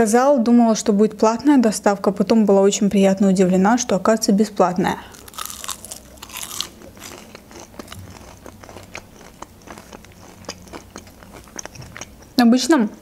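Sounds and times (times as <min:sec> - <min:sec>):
crunchy chewing: 0:05.1 - 0:13.0.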